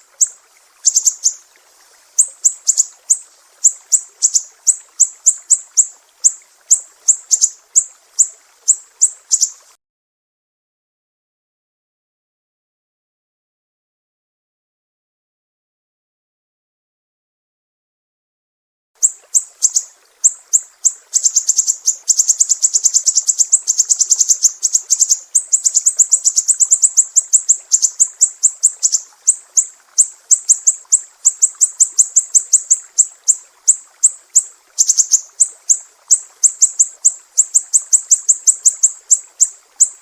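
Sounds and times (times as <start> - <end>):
songbird chirping rapidly: 0.0 - 1.4, 2.2 - 9.7, 19.0 - 40.0.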